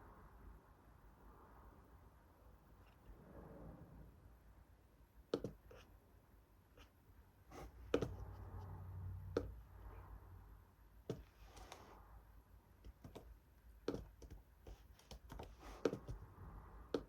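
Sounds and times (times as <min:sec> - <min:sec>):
light sharp clicks and taps: 0:05.3 - 0:05.6.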